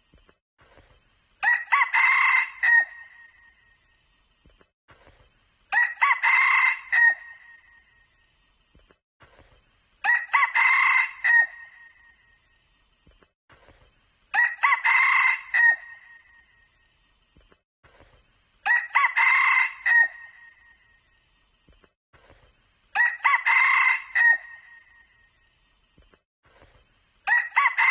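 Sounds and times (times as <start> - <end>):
rooster crowing: 1.4 - 3.2, 5.7 - 7.4, 10.0 - 11.9, 14.4 - 16.2, 18.7 - 20.5, 23.0 - 24.9, 27.3 - 27.9.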